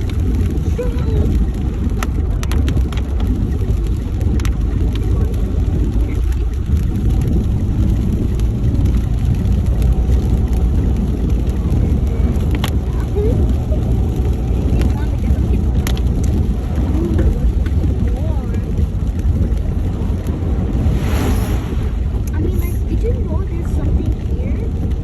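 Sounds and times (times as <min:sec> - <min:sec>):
vehicle engine and tyre rumble: 0:00.0 - 0:25.0.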